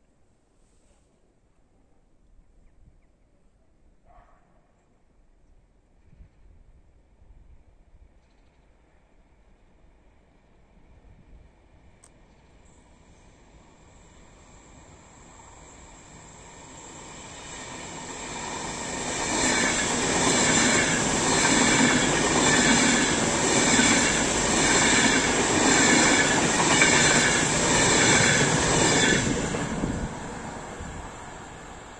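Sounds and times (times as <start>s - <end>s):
train passing close by: 10.1s - 31.9s.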